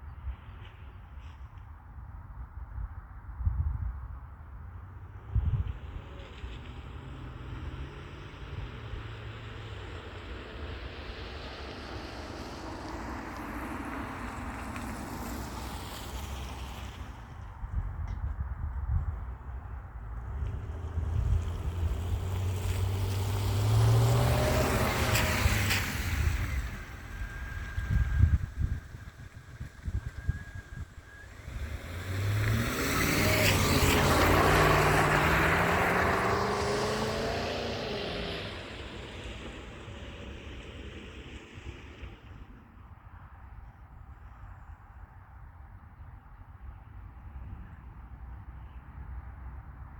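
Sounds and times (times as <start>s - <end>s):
wind rumble on microphone: 0.0s - 49.9s
car passing by: 5.2s - 18.0s, 19.4s - 43.1s.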